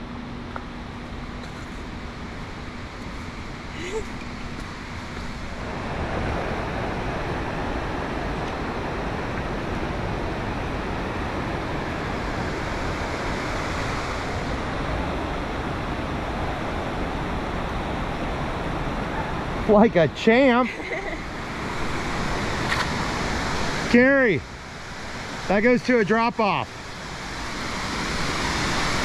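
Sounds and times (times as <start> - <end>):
rushing river water: 0.8 - 29.0.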